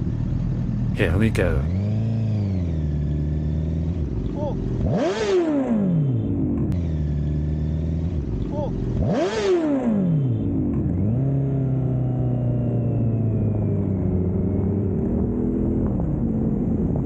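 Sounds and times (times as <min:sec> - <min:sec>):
motorcycle engine revving: 0:01.7 - 0:12.6.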